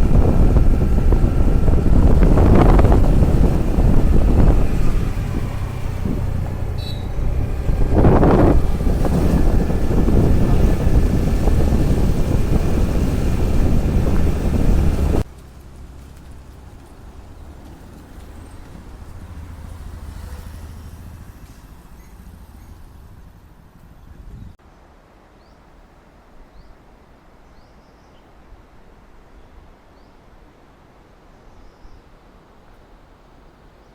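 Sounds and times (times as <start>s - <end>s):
wind over microphone: 0.0s - 15.3s, 17.9s - 24.6s
scooter road noise: 0.0s - 24.6s
outdoor background noise: 0.0s - 33.9s
small birds chirping: 1.0s - 15.2s.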